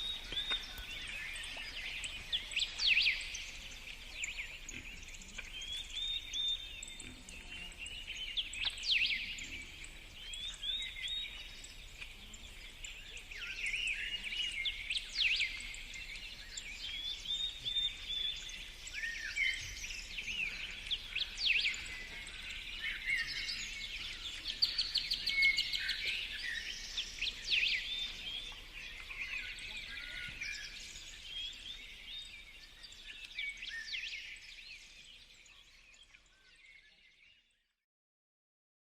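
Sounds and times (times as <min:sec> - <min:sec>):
songbirds singing: 0:00.0 - 0:37.8.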